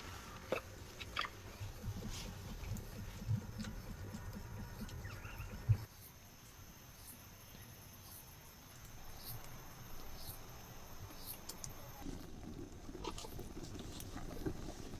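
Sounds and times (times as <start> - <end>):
insects chirring: 3.4 - 12.1
faint ticks: 8.7 - 10.4, 11.1 - 12.0.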